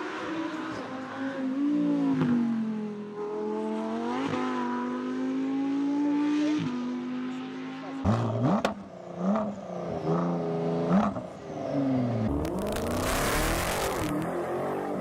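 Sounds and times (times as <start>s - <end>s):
supercar engine revving: 12.3s - 15.0s.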